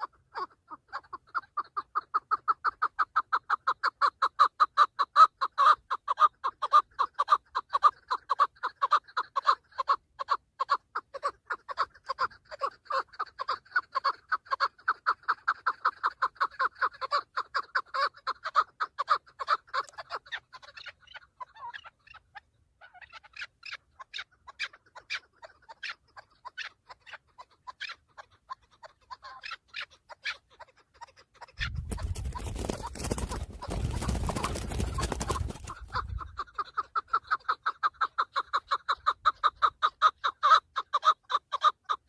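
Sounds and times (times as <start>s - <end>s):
partridge chuck call: 0.0s - 42.0s.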